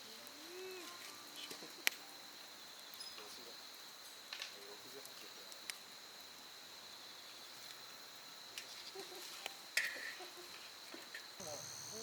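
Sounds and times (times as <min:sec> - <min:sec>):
campfire wood crackling: 0:00.0 - 0:12.0
night insects trilling: 0:00.0 - 0:12.0.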